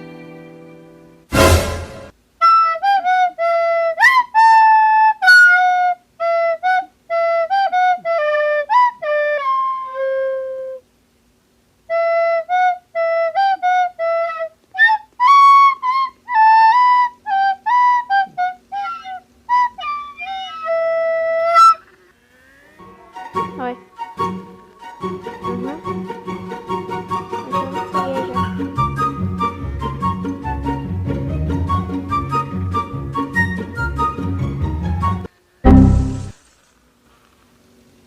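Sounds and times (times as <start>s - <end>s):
loud burst of noise: 1.3s - 2.1s
flute melody: 22.8s - 36.4s.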